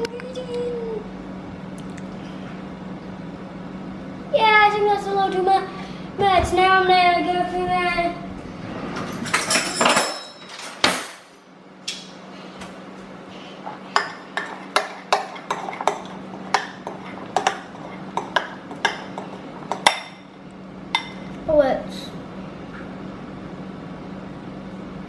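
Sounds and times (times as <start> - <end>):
utensil stirring in a bowl: 13.4 - 20.3
utensil clinking against bowl: 13.9 - 20.3, 21.0 - 21.3.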